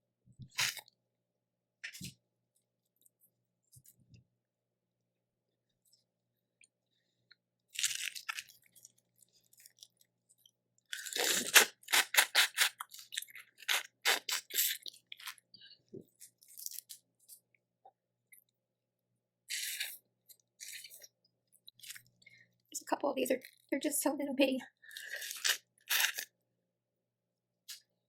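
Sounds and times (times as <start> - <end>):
shells cracking and crunching: 7.8 - 8.6.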